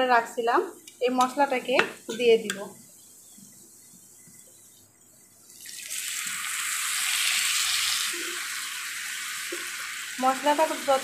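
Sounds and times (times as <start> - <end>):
spice paste sizzling in oil: 0.0 - 11.0.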